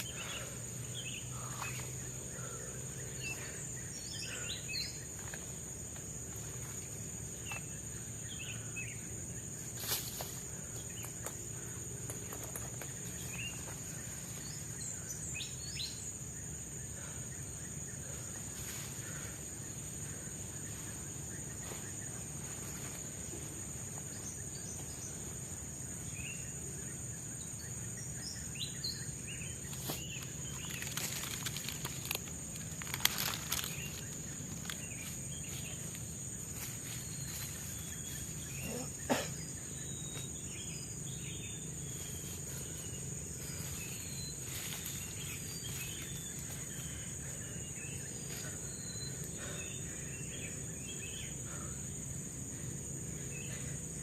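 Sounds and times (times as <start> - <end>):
high-pitched insect drone: 0.0 - 54.0
rustles and clicks: 29.6 - 38.4.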